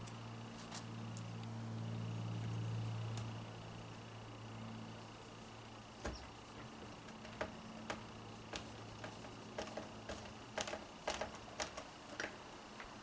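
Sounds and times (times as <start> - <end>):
plastic parts clicking and knocking: 6.0 - 13.0.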